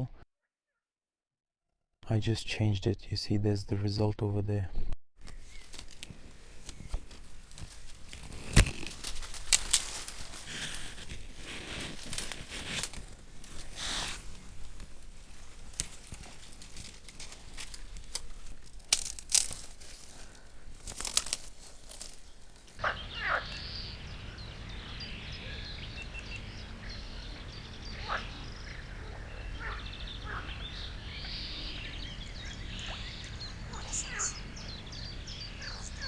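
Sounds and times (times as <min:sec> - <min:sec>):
crackling handling noise: 0:05.2 - 0:22.8
bird chirps: 0:22.8 - 0:36.0.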